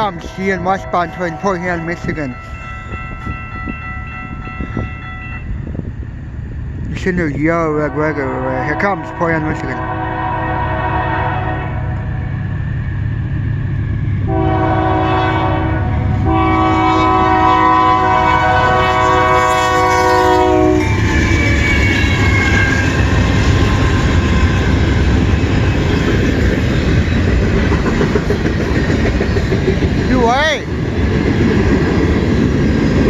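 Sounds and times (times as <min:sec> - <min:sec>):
diesel locomotive rumble: 0:00.0 - 0:33.0
rail cars rattling: 0:00.0 - 0:33.0
train air horn blasts: 0:07.8 - 0:12.0, 0:14.3 - 0:22.9.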